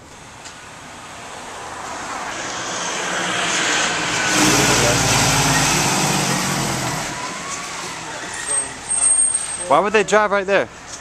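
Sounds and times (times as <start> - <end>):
vehicle driving past: 1.8 - 8.7.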